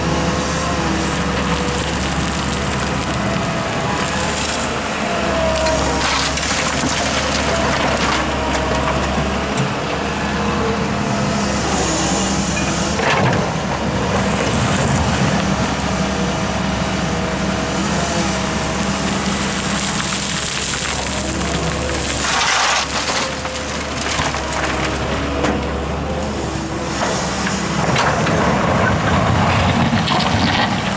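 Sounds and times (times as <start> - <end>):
diesel engines running: 0.0 - 30.9.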